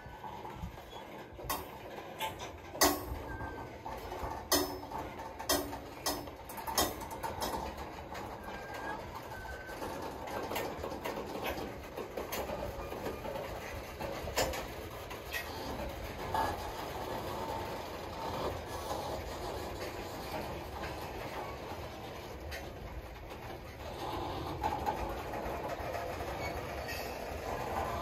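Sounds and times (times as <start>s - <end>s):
train wheels rumbling on rails: 0.0s - 28.0s
sharp metal clanks and clicks: 1.4s - 8.3s.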